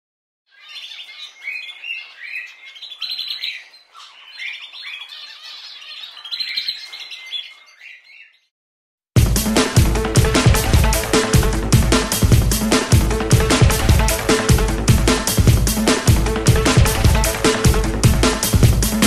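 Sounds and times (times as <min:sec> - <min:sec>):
birds chirping: 0:00.5 - 0:08.5, 0:10.3 - 0:19.0.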